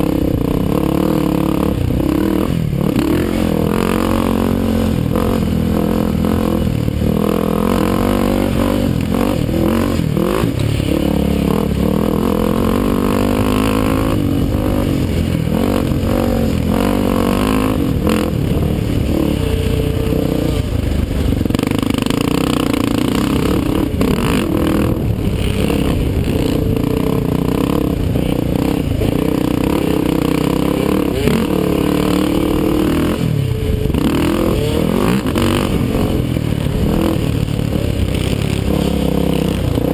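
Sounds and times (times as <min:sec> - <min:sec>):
atv engines revving: 0:00.0 - 0:39.9.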